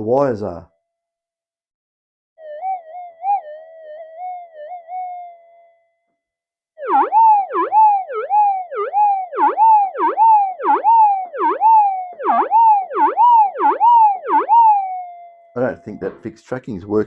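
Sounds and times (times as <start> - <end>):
metal detector warbling tone: 2.4 - 5.7, 6.8 - 16.4.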